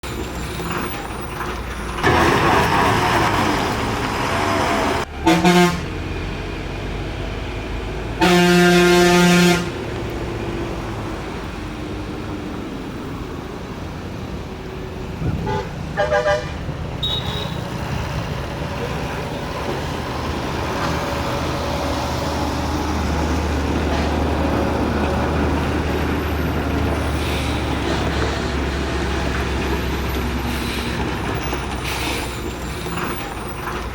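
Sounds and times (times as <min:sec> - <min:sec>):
truck engine and road noise: 0:00.0 - 0:33.9
vehicle horns honking: 0:05.1 - 0:05.9, 0:08.2 - 0:09.8, 0:15.3 - 0:17.8.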